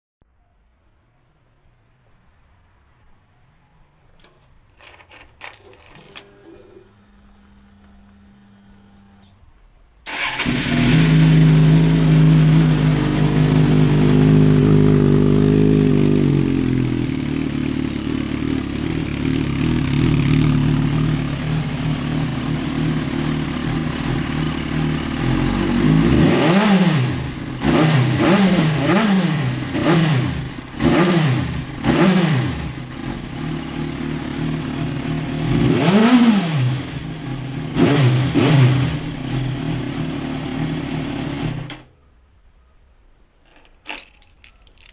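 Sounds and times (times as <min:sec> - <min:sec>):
clicks: 0:04.1 - 0:08.3
motorcycle engine starting and revving: 0:04.2 - 0:09.3, 0:10.0 - 0:41.9.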